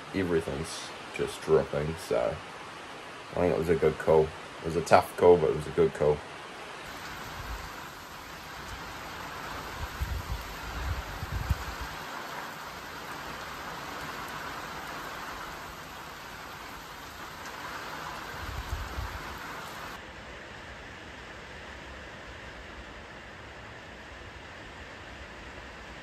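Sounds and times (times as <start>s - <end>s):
heavy rain falling: 6.3s - 20.0s
water running down a flooded track: 6.8s - 20.0s
wind rumbling on microphone: 6.9s - 15.5s, 16.6s - 20.0s.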